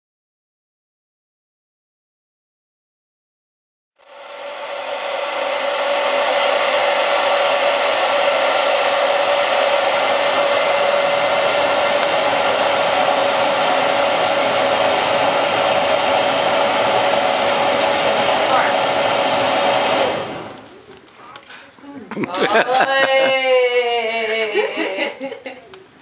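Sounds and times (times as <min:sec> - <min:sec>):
hair dryer blowing: 0:04.0 - 0:20.9.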